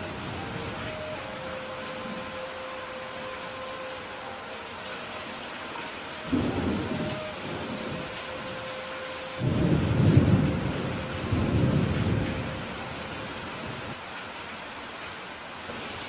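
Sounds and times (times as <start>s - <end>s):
steady rain: 0.0s - 16.0s
thunder rumbling: 6.3s - 13.9s.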